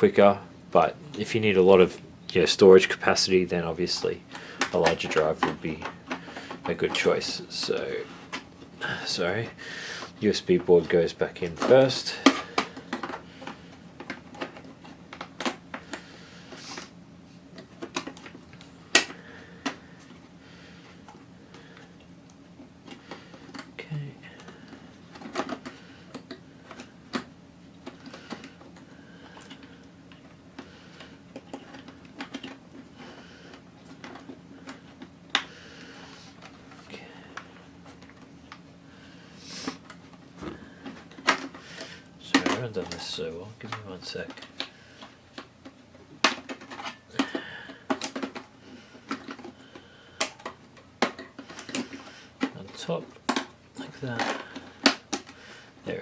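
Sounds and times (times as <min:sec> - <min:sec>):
plastic and metal parts clicking: 0:40.8 - 0:55.4
plastic components knocking: 0:45.4 - 0:55.4.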